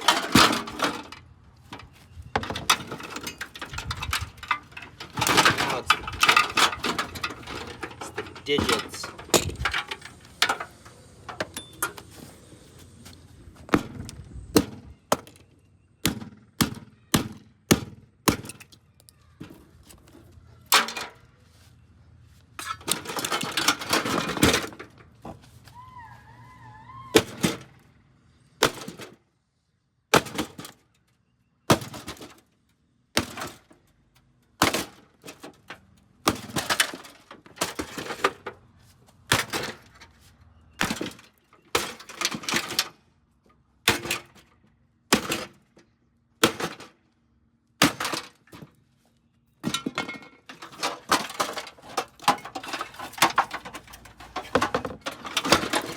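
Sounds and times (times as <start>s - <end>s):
microwave being smashed: 2.4s - 10.7s, 30.1s - 30.8s, 31.7s - 32.3s, 34.6s - 35.6s, 36.2s - 38.4s, 39.3s - 39.9s, 40.8s - 43.0s, 43.9s - 44.4s, 46.4s - 47.0s, 47.8s - 48.7s, 49.6s - 55.9s.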